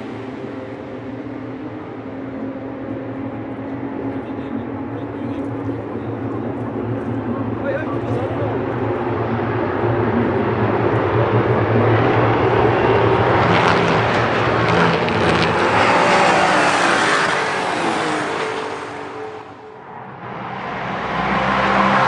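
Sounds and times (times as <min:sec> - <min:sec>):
race car passing: 0:00.0 - 0:22.0.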